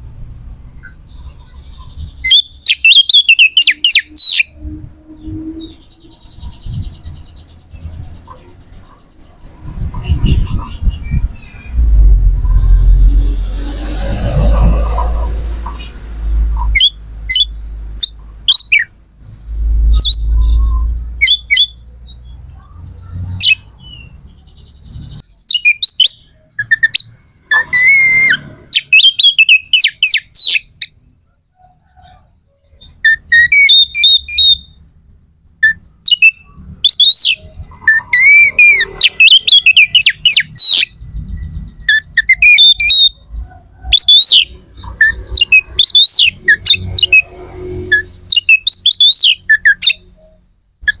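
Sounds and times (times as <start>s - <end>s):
bird chirps and squawks: 0.8s - 21.8s, 22.6s - 24.0s, 24.9s - 34.9s, 35.6s - 51.0s
low rumble: 9.5s - 16.7s.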